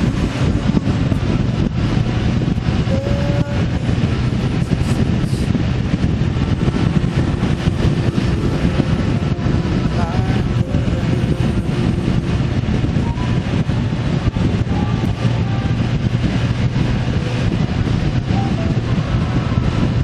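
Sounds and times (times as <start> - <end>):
road and wind noise: 0.0 - 20.0
vehicle engine running: 0.0 - 20.0.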